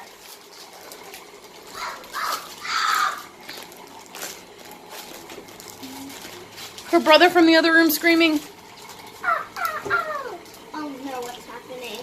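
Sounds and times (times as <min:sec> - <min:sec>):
child screaming: 0:01.7 - 0:03.3, 0:09.3 - 0:10.4.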